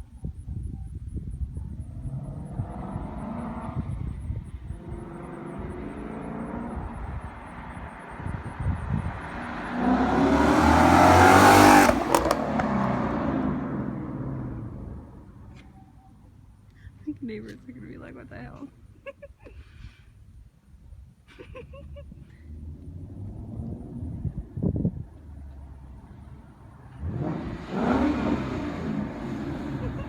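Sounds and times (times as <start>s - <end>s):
car accelerating past: 1.9s - 15.6s, 22.4s - 30.0s.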